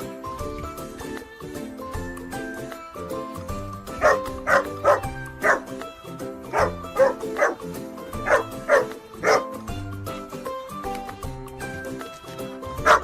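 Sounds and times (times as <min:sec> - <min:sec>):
background music: 0:00.0 - 0:13.0
dog barking: 0:04.0 - 0:05.7, 0:06.5 - 0:07.6, 0:08.2 - 0:09.5, 0:12.8 - 0:13.0.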